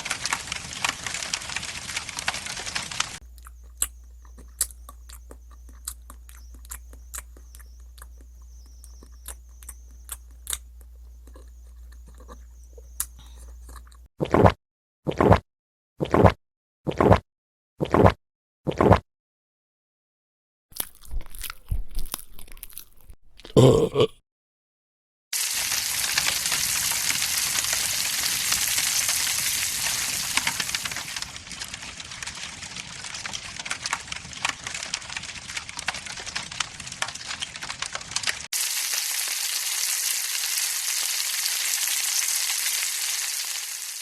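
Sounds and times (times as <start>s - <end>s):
campfire crackling: 0.0s - 12.0s, 25.4s - 44.0s.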